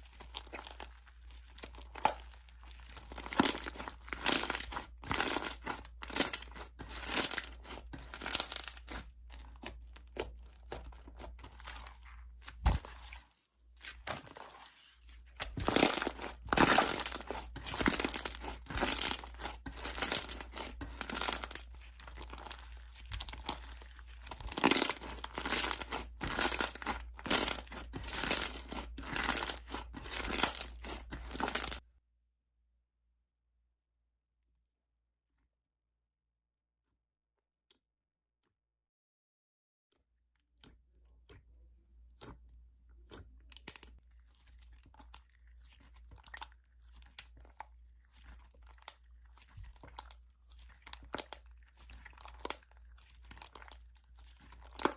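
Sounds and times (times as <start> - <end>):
slime squishing and popping: 0.0 - 31.8, 40.6 - 54.9.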